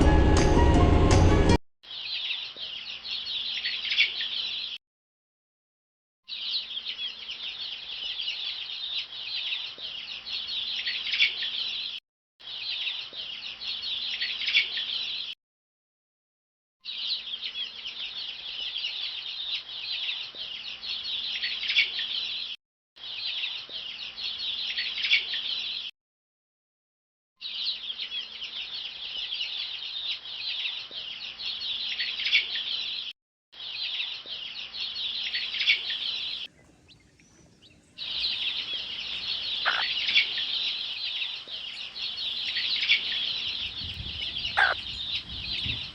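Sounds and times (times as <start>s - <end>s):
chicks peeping: 33.8s - 45.9s.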